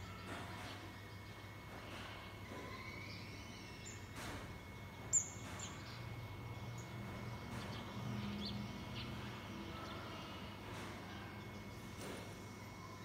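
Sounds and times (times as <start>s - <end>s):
low steady background hum: 0.0s - 13.0s
small bird chirping: 4.9s - 13.0s.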